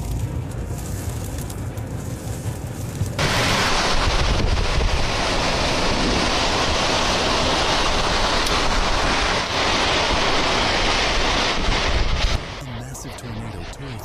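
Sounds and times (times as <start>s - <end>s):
strong wind buffeting microphone: 2.6s - 12.6s.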